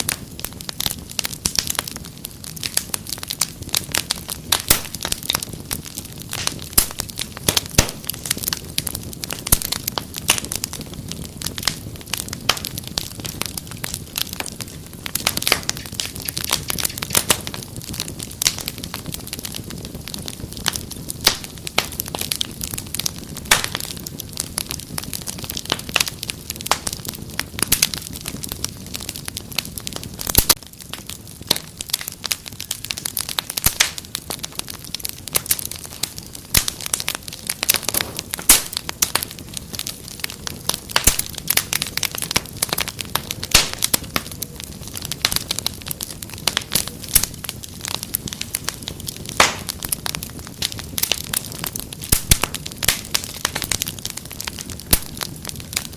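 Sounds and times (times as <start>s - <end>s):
wood fire crackling: 0.0s - 55.9s.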